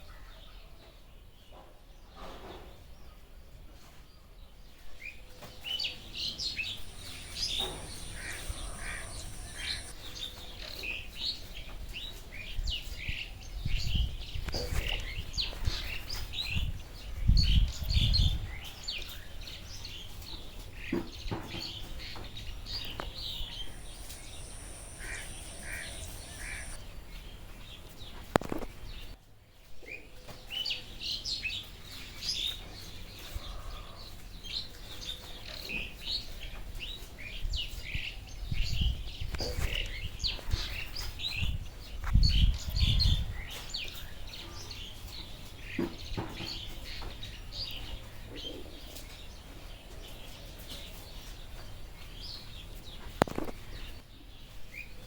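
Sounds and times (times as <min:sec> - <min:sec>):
birds chirping: 0:06.2 - 0:10.0, 0:20.9 - 0:26.9
thin high tone: 0:06.8 - 0:09.9, 0:23.0 - 0:26.8.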